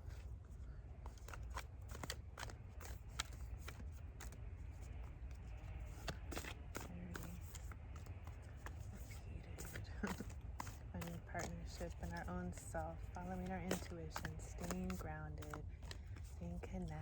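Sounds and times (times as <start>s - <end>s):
cards being shuffled: 0.0s - 17.0s
low steady rumble: 0.0s - 17.0s.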